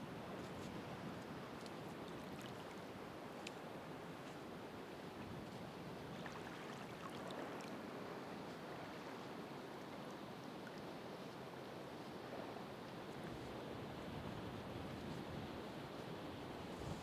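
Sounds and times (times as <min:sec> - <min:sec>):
faint water ticks: 0:00.4 - 0:04.4, 0:05.4 - 0:08.6, 0:09.2 - 0:11.4.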